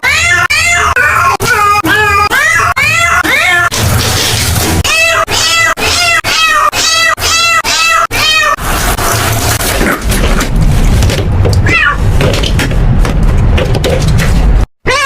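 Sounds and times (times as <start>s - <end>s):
cat meowing: 0.0s - 3.7s, 4.8s - 8.6s, 11.6s - 12.0s.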